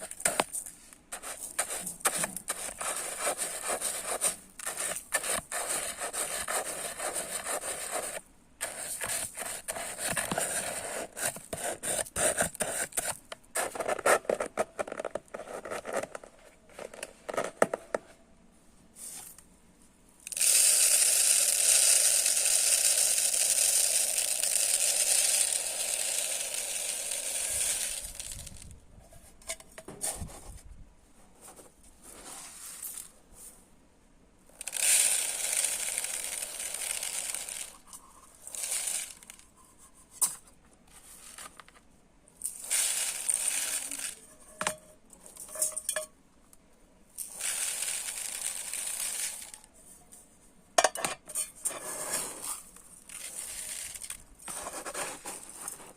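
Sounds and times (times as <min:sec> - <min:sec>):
dry rice pouring: 0:00.0 - 0:12.0, 0:20.2 - 0:28.6, 0:34.5 - 0:37.8, 0:38.4 - 0:39.4, 0:42.4 - 0:44.8, 0:47.2 - 0:49.7, 0:52.0 - 0:55.6
rice scooping: 0:00.0 - 0:16.1, 0:20.3 - 0:28.6, 0:34.5 - 0:39.5, 0:42.4 - 0:46.1, 0:47.2 - 0:49.6, 0:51.3 - 0:55.9.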